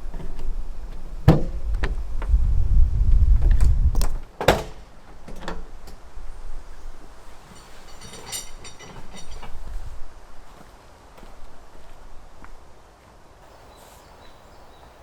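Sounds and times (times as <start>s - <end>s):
knocks and thuds: 1.2s - 2.3s.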